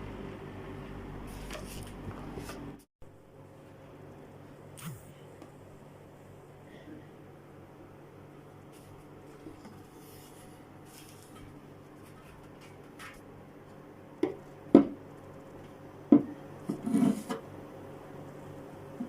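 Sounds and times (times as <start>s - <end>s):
wood scraping on wood: 16.7s - 17.4s.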